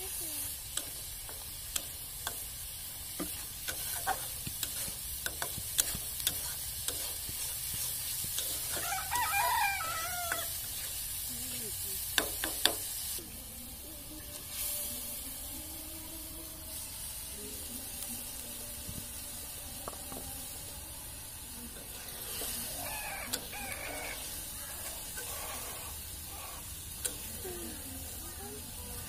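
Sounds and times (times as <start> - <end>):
food sizzling in a wok: 0.0 - 29.0.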